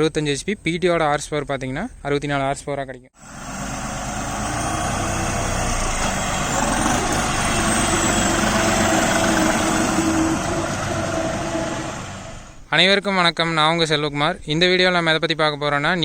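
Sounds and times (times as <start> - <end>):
tractor diesel engine running: 3.2 - 12.7.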